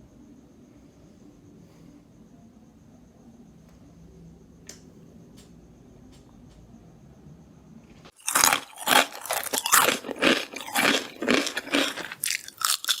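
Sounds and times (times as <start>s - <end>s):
chewing crunchy food: 8.1s - 13.0s.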